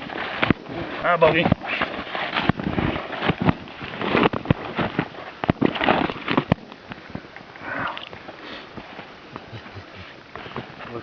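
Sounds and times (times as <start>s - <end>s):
snow crunching: 0.0s - 6.6s.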